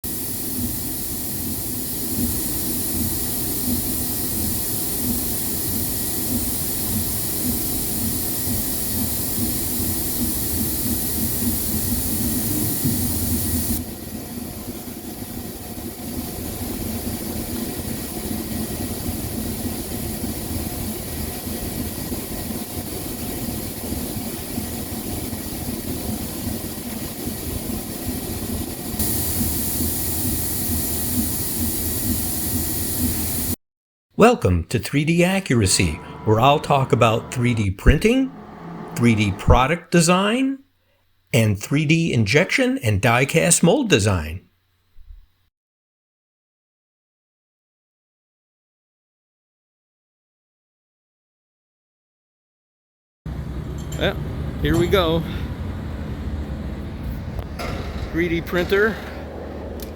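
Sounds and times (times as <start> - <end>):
mechanical drone with hiss: 29.0 - 33.6, 35.8 - 39.6.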